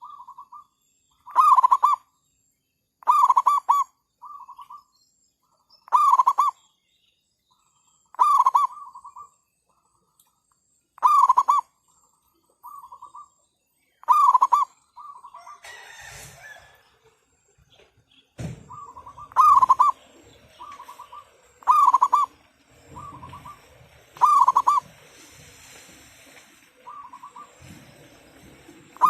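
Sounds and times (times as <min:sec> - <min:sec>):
doves trilled cooing: 0:00.0 - 0:02.1, 0:03.0 - 0:04.9, 0:05.8 - 0:06.6, 0:08.0 - 0:09.9, 0:11.0 - 0:11.8, 0:12.6 - 0:13.4, 0:14.0 - 0:17.0, 0:17.8 - 0:29.0
rustling noise: 0:22.4 - 0:29.0.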